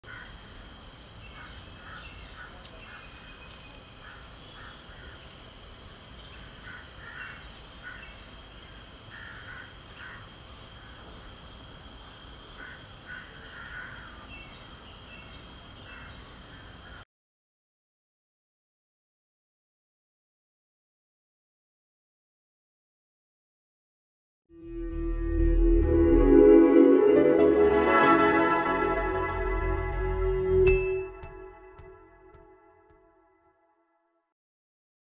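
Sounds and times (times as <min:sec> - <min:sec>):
outdoor background noise: 0:00.0 - 0:17.0
birds calling: 0:01.2 - 0:05.5, 0:06.2 - 0:10.2.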